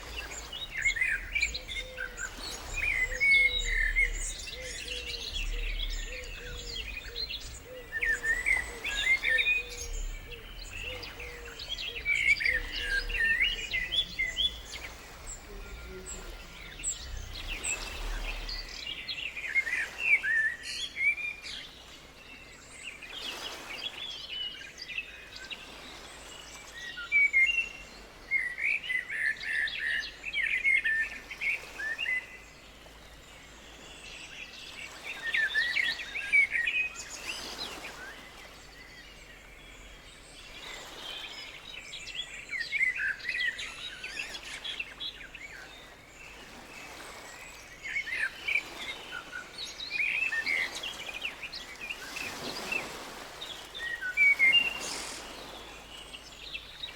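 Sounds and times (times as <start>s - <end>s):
small birds chirping: 0.0s - 20.7s.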